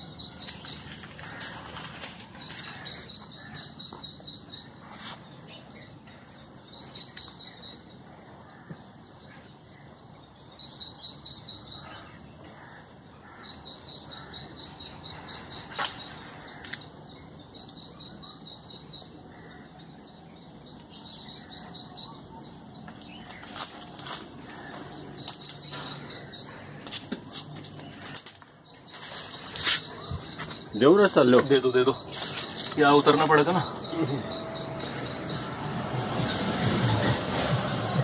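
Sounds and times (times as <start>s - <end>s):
bird singing high chirps: 6.7s - 7.9s, 10.5s - 11.9s, 17.4s - 19.2s, 25.2s - 26.6s, 28.7s - 35.6s.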